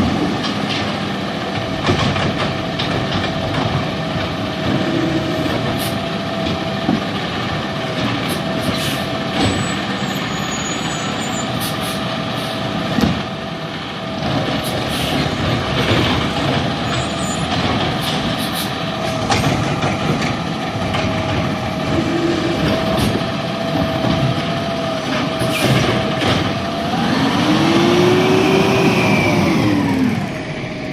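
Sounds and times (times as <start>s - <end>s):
garbage truck engine whining: 0.0s - 30.9s
engine revving: 25.0s - 30.9s.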